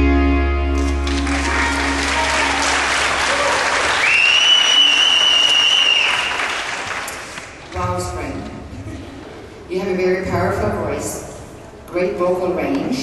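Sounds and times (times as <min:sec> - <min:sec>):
audience applauding and cheering: 0:00.7 - 0:07.7
long steady whistle: 0:03.9 - 0:06.5.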